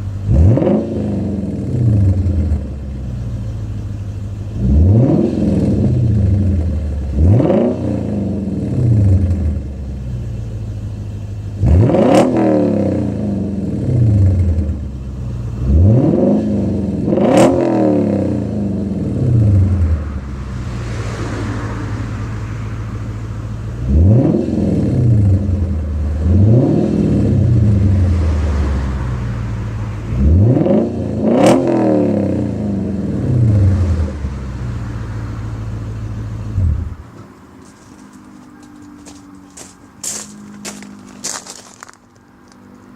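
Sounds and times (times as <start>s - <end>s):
car engine idling and revving: 0.0s - 42.9s.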